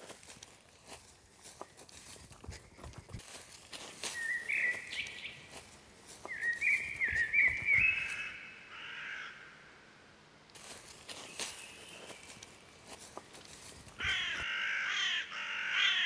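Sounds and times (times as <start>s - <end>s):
footsteps on dry leaves: 0.0s - 8.4s, 10.6s - 14.5s
bird chirping: 3.8s - 8.7s, 11.0s - 12.6s.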